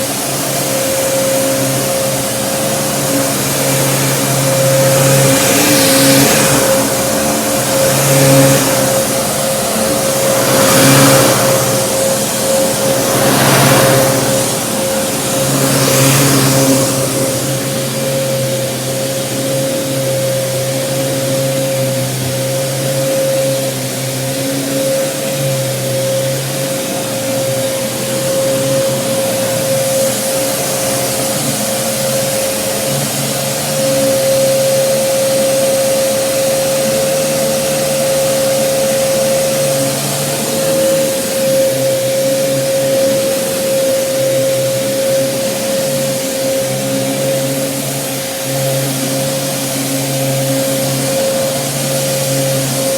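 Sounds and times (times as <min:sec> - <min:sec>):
rushing air: 0:00.0 - 0:21.0
vacuum cleaner whining and humming: 0:00.0 - 0:52.9.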